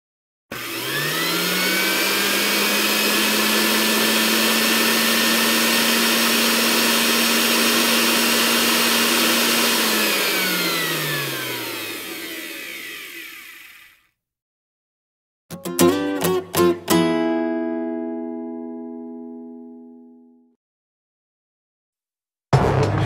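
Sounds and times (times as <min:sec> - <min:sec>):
electric blender whirring: 0:00.5 - 0:14.2.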